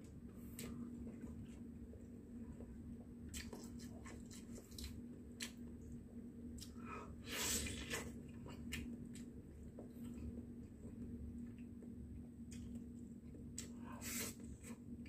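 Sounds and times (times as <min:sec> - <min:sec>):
person chewing with mouth smacks: 0:03.3 - 0:05.9.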